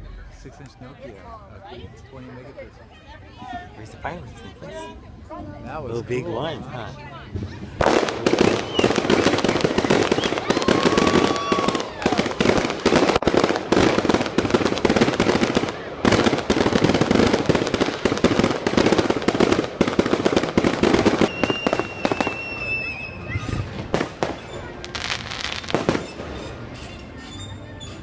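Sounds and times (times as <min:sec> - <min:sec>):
fireworks crackling and popping: 0:07.3 - 0:26.8
short high whistle: 0:21.3 - 0:23.6.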